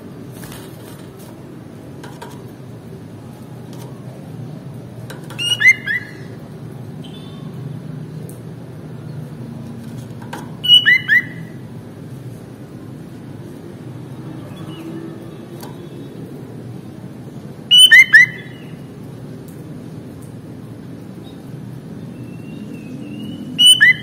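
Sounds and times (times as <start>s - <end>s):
bird singing whistled notes: 5.4s - 6.3s, 10.6s - 11.5s, 17.7s - 18.7s, 22.1s - 24.0s.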